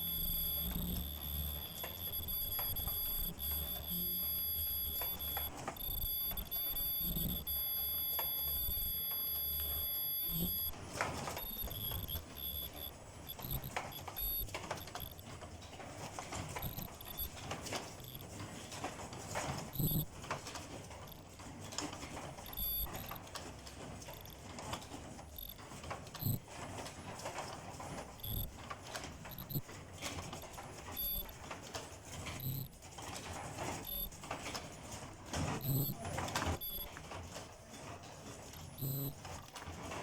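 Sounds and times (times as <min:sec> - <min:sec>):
machine high-pitched whine: 0:00.0 - 0:10.8, 0:11.4 - 0:15.2, 0:16.6 - 0:17.3, 0:19.8 - 0:20.0, 0:22.5 - 0:23.2, 0:28.2 - 0:28.5, 0:29.3 - 0:29.6
machine pulsing low hum: 0:00.0 - 0:10.8, 0:11.4 - 0:15.2, 0:16.6 - 0:17.3, 0:19.8 - 0:20.0, 0:22.5 - 0:23.2, 0:24.1 - 0:24.4, 0:25.2 - 0:25.6, 0:28.2 - 0:28.5, 0:29.3 - 0:29.6, 0:32.4 - 0:32.7.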